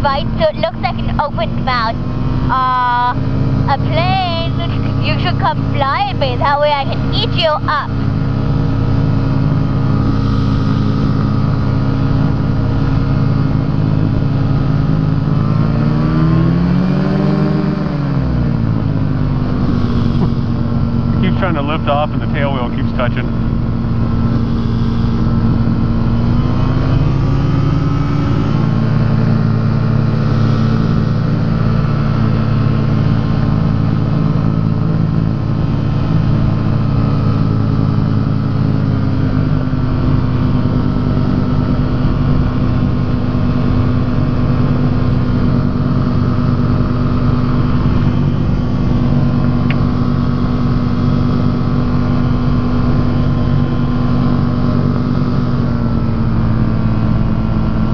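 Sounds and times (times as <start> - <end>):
wind rumbling on microphone: 0.0 - 21.3
ultralight aircraft engine and propeller: 0.0 - 57.9.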